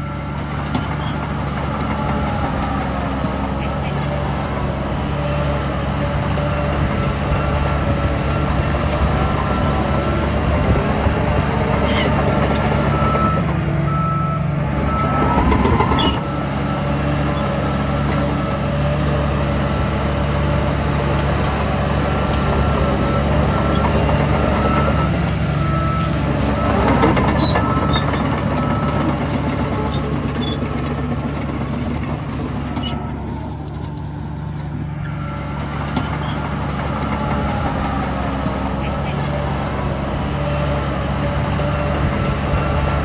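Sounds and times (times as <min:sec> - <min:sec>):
heavy diesel engines running: 0:00.0 - 0:43.0
reversing alarm beeping: 0:07.2 - 0:17.2, 0:22.1 - 0:35.8.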